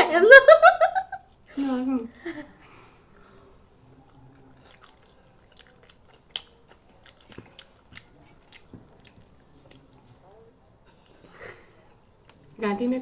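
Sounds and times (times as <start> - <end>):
mouth clicks and smacks chewing: 4.0 - 10.1.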